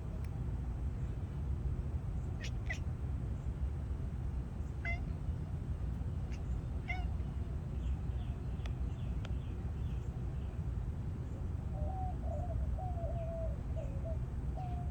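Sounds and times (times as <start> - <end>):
low background rumble: 0.0 - 14.9
cat chattering: 2.4 - 2.8, 4.8 - 5.1, 6.3 - 7.2.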